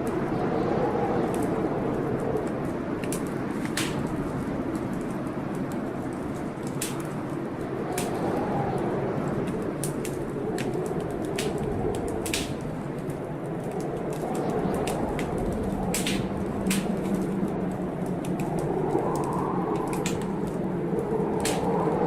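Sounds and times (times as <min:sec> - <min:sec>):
blizzard wind rushing: 0:00.0 - 0:22.0
wood fire crackling and popping: 0:00.0 - 0:22.0.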